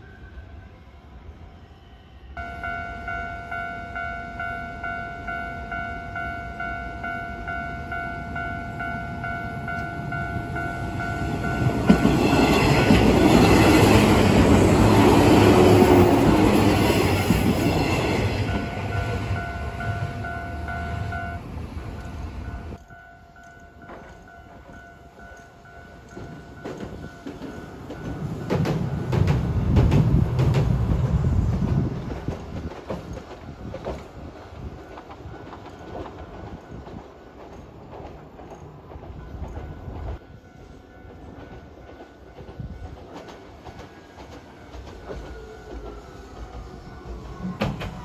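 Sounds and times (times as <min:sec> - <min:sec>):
level-crossing alarm ringing: 0:02.4 - 0:28.8
train rumble: 0:02.4 - 0:48.0
tram wheels clacking over rail joints: 0:08.4 - 0:48.0.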